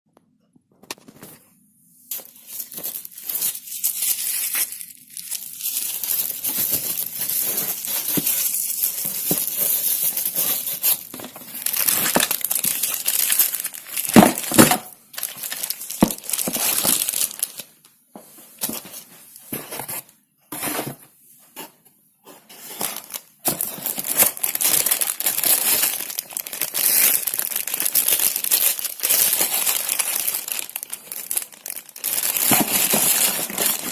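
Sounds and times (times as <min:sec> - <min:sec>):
packaging crinkling: 0:02.1 - 0:17.8, 0:22.6 - 0:33.9.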